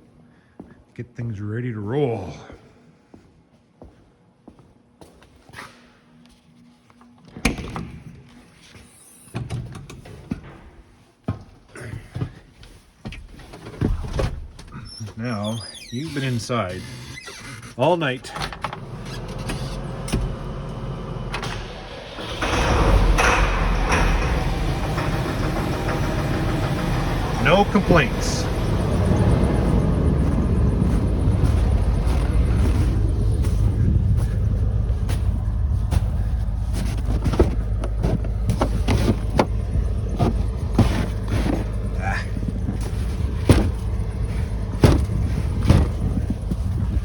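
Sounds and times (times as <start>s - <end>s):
truck engine cranking and running: 13.9s - 47.0s
truck door and cab clicks: 18.4s - 33.7s, 35.5s - 47.0s.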